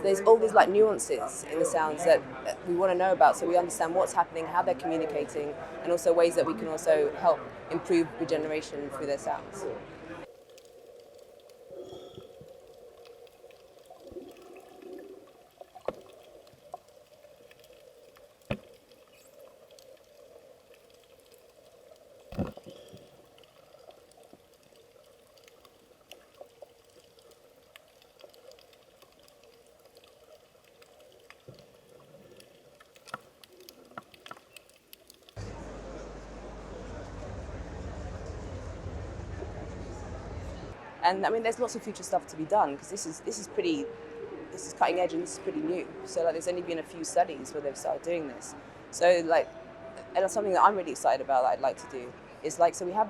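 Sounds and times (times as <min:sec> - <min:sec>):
sharp knocks and pops: 0:15.8 - 0:16.2, 0:18.4 - 0:18.8, 0:22.3 - 0:23.2.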